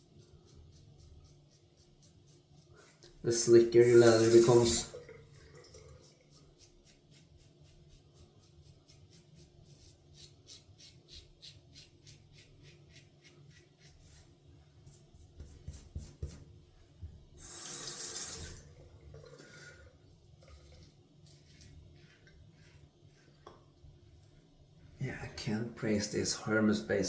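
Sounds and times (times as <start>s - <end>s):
shaving brush scratchy strokes: 0.0s - 4.9s, 5.9s - 16.4s, 20.6s - 23.5s
water hiss: 3.3s - 5.0s, 17.4s - 18.7s.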